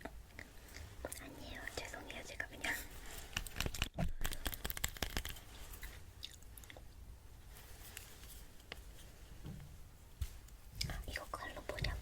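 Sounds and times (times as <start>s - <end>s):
small clicks and crackles: 3.2s - 6.8s.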